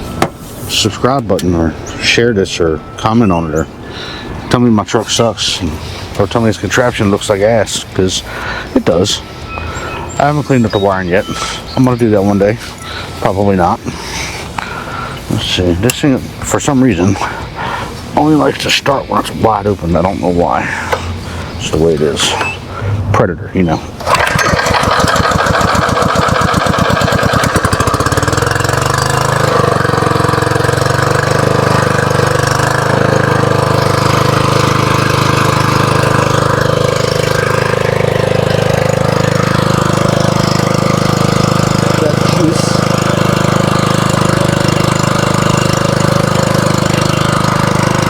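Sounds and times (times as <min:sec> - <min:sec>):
small engine starting and revving: 0:24.0 - 0:48.0.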